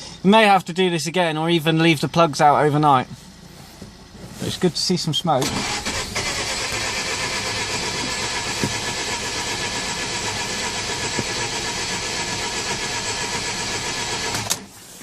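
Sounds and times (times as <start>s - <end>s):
engine cranking on starter: 5.4s - 14.7s.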